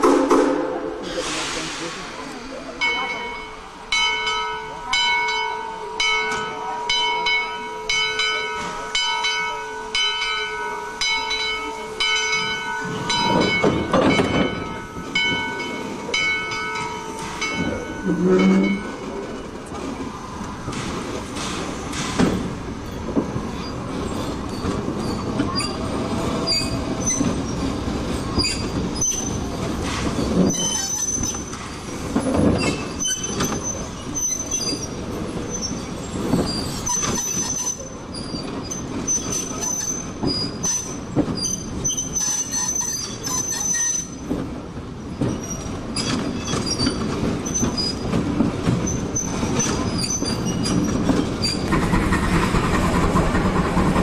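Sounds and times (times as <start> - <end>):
train rumble and clatter: 0.0 - 54.0
steel wheels squealing: 12.0 - 19.6, 21.5 - 44.3, 45.0 - 52.5.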